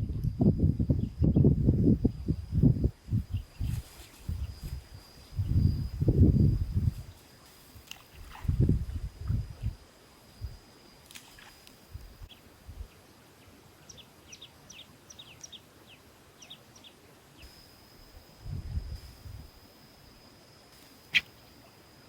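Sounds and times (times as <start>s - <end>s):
steady high whine: 0.0s - 13.3s, 15.7s - 22.0s
small bird chirping: 21.0s - 22.0s.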